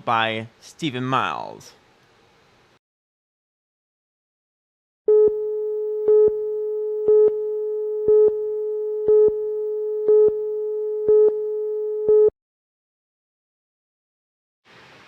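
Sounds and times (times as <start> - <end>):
steady electronic tone: 5.1 - 12.3.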